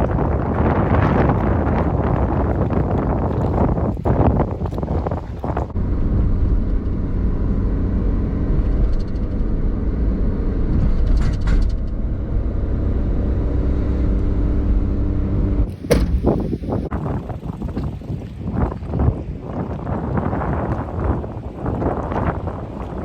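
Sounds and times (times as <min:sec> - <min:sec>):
engine rumbling: 0:05.7 - 0:18.0.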